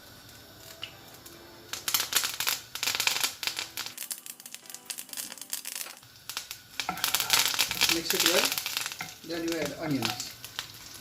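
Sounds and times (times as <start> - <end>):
leaves crackling in hot oil: 0.0 - 11.0.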